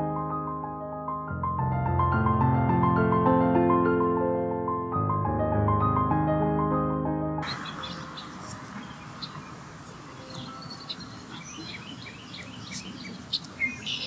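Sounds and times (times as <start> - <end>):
birds chirping: 7.4 - 14.0
outdoor background hiss: 7.4 - 14.0.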